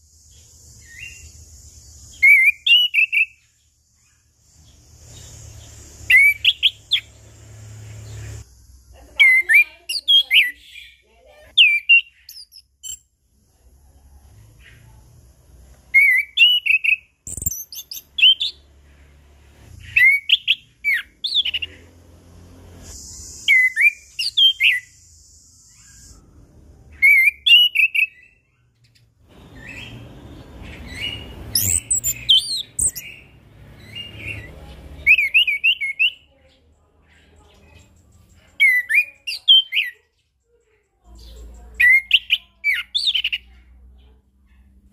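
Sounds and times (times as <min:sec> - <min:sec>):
thrush singing whistled notes: 0:00.0 - 0:11.0, 0:11.6 - 0:13.1, 0:15.9 - 0:18.7, 0:19.6 - 0:21.9, 0:22.6 - 0:28.6, 0:29.3 - 0:36.3.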